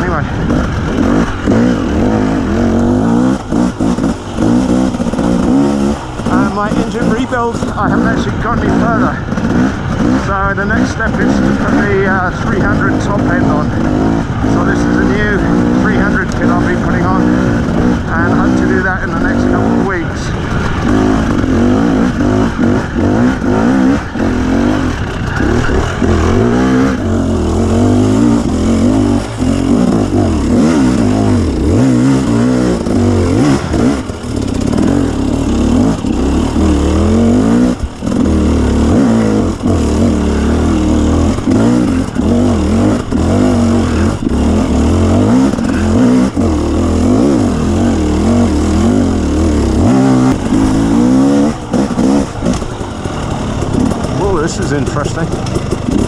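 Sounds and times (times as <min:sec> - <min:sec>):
two-stroke dirt bike engine revving: 0:00.0 - 0:56.0.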